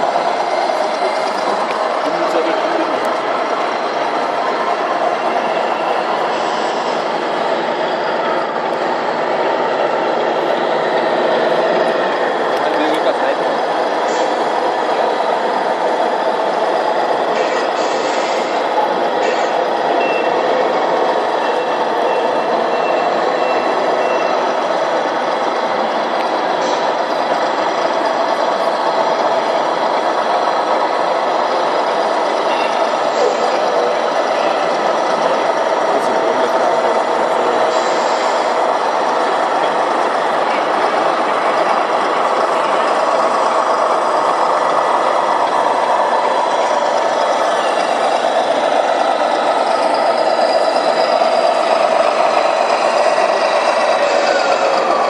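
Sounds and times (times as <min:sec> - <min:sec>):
model truck diesel engine sound: 0:00.0 - 0:55.0
reversing beeper: 0:05.0 - 0:08.6, 0:19.4 - 0:24.5, 0:32.4 - 0:35.4.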